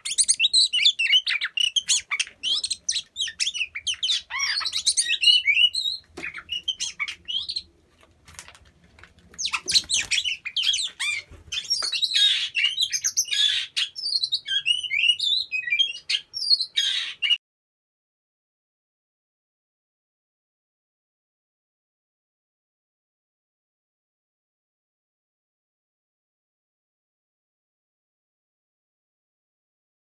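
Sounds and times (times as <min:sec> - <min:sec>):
birds chirping and rasping: 0:00.0 - 0:17.4.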